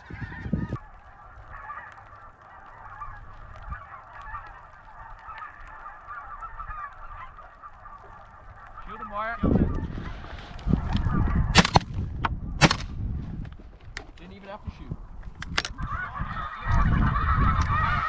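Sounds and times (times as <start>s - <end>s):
geese honking: 0.0s - 11.5s, 15.6s - 18.0s.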